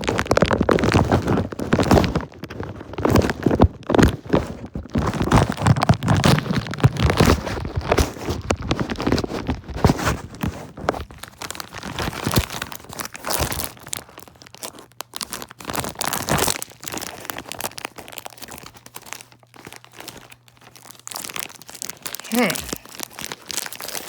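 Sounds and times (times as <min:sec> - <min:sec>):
packaging crinkling and tearing: 0:00.0 - 0:24.0.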